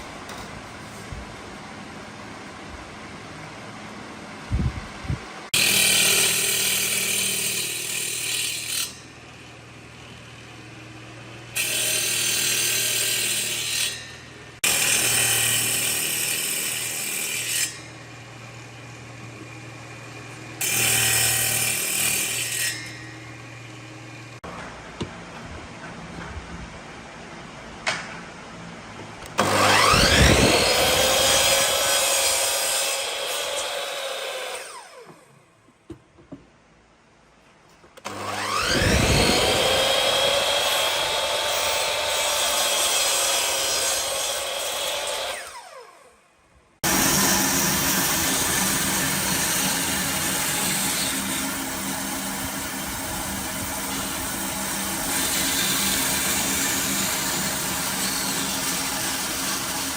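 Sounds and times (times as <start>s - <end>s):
power tool motor whining: 29.4s - 32.5s, 38.0s - 42.3s.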